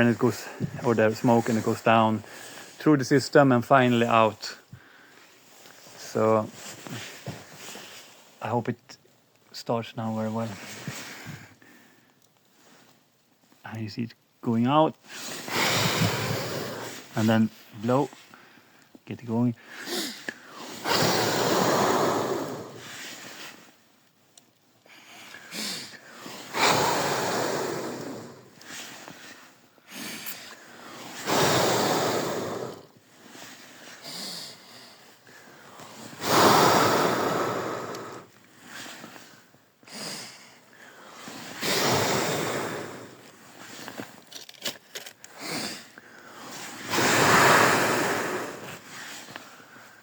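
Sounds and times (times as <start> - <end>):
quick inhales: 1.4 - 2.8, 4.7 - 6.0, 15.1 - 17.4, 19.6 - 23.7, 24.9 - 44.1, 45.2 - 50.0
man blowing hard into firebox: 15.1 - 17.4, 19.6 - 23.7, 24.8 - 44.0, 45.2 - 49.8.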